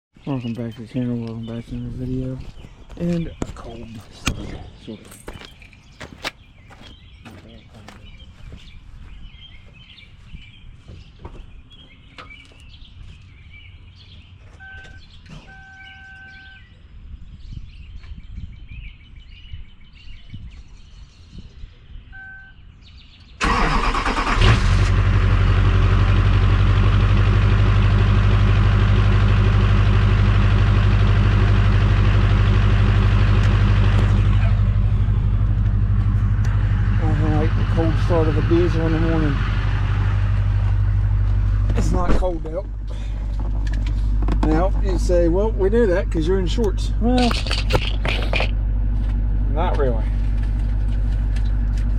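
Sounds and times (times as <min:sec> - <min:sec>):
birds chirping: 0:00.1 - 0:24.3, 0:32.5 - 0:51.9
diesel engine starting and idling: 0:23.4 - 0:51.9.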